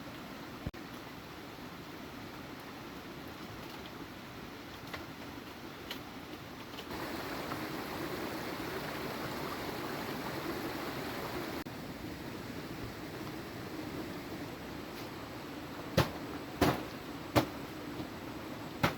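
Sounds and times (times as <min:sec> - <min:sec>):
heavy rain hissing: 0:06.9 - 0:18.9.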